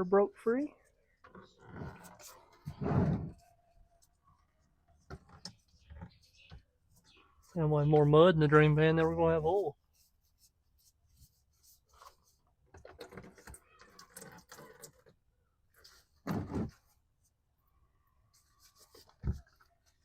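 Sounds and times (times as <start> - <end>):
oil filter rubbing and scraping: 1.2 - 4.2, 5.0 - 17.3.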